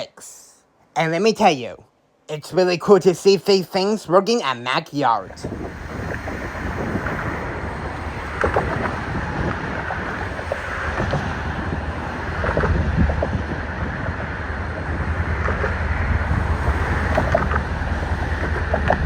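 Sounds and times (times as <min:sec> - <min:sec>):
wind buffeting microphone: 0:05.2 - 0:19.0
low engine rumble: 0:05.3 - 0:19.0.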